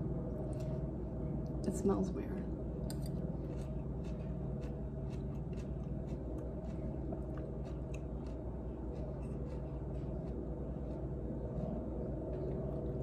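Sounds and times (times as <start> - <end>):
steady low hum: 0.0 - 13.0
chewing crunchy carrot: 2.8 - 13.0.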